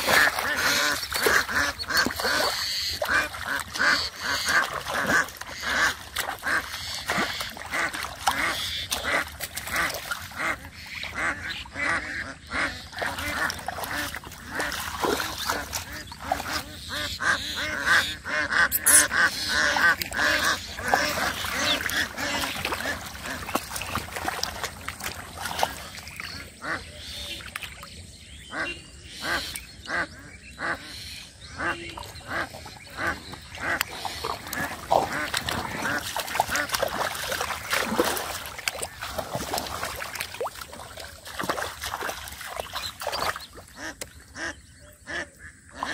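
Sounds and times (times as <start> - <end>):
ducks quacking: 0.0 - 45.9.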